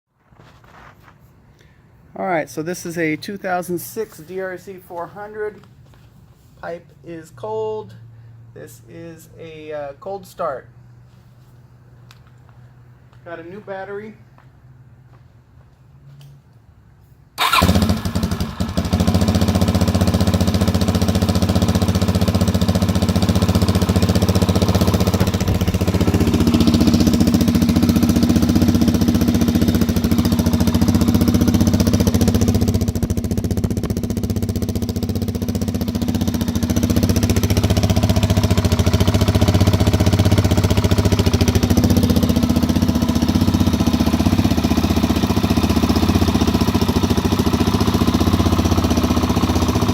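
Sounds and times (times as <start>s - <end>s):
motorcycle engine starting and idling: 17.3s - 49.9s.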